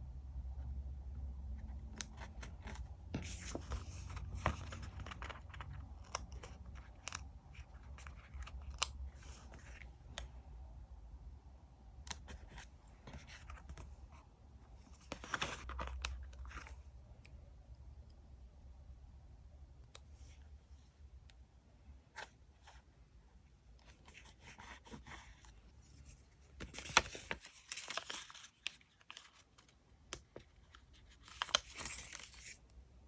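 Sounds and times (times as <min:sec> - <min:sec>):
paper rustling: 0:02.0 - 0:09.8, 0:14.8 - 0:16.8, 0:23.8 - 0:29.8, 0:30.4 - 0:32.6.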